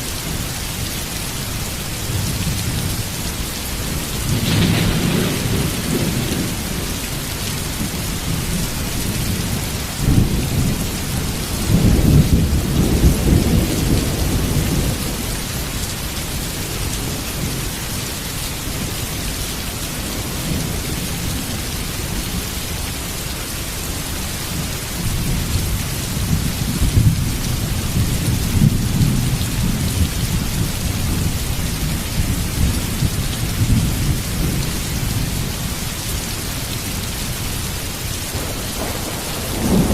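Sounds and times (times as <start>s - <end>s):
heavy rain pouring: 0.0s - 39.9s
thunder rumbling: 2.1s - 15.6s, 37.0s - 39.9s.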